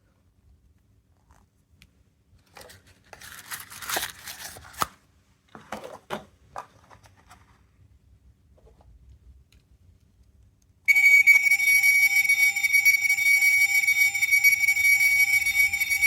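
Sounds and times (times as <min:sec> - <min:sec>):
plastic crinkling: 0:02.5 - 0:05.0.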